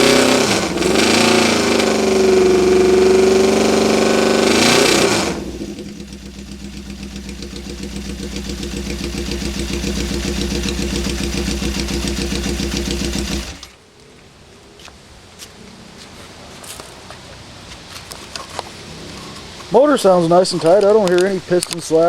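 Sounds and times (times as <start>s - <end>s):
motorcycle engine idling: 0.0s - 13.8s.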